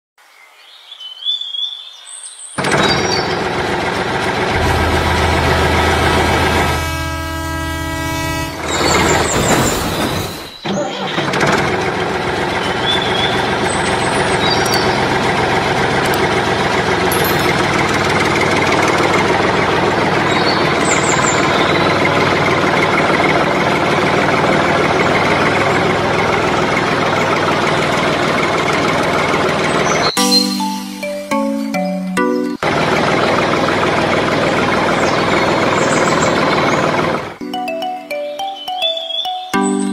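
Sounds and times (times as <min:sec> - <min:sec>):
large vehicle engine running: 0:02.6 - 0:31.0, 0:32.5 - 0:37.4
horn-like tone: 0:04.5 - 0:10.6
birds chirping: 0:12.4 - 0:16.2, 0:20.1 - 0:22.5, 0:29.6 - 0:39.9.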